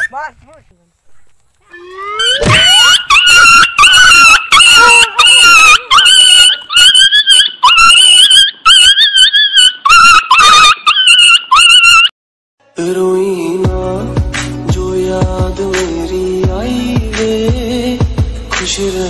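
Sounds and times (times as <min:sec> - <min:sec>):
dog whining and crying: 0:01.7 - 0:12.1.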